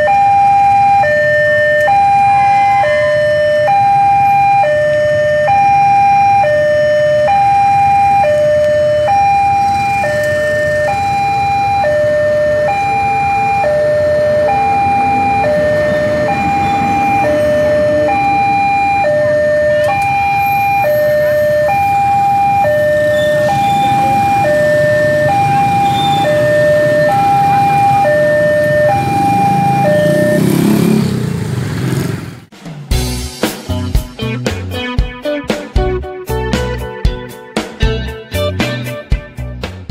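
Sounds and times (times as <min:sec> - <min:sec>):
level crossing warning tones: 0:00.0 - 0:31.4
motorcycle engines revving: 0:00.2 - 0:32.5
diesel locomotive rumble: 0:08.4 - 0:34.9.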